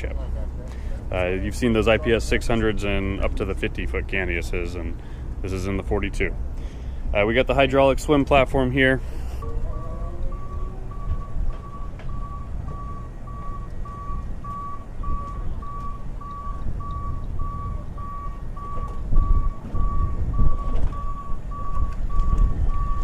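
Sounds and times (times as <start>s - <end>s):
high warning beeps: 9.4s - 23.0s.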